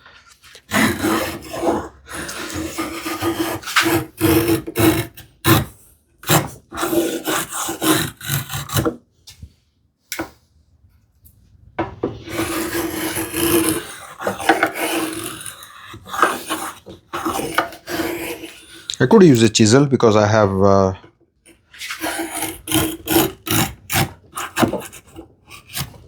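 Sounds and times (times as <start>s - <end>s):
hand saw cutting wood: 0.6s - 9.0s, 12.2s - 19.4s, 21.5s - 26.0s.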